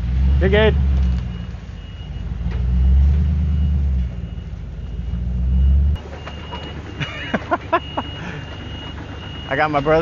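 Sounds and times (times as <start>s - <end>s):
heavy equipment engine rumbling: 0.0s - 10.0s.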